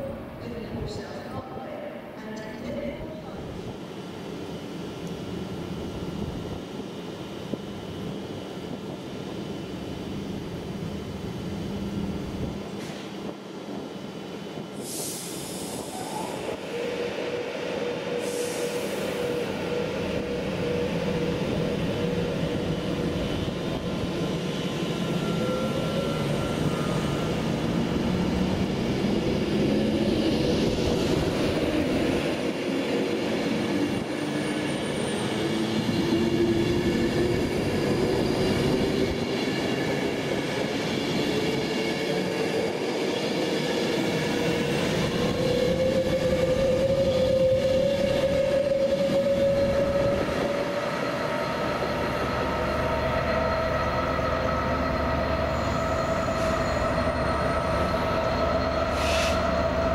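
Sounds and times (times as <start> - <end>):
freight train rumbling: 0.0 - 59.9
short hisses: 59.0 - 59.4.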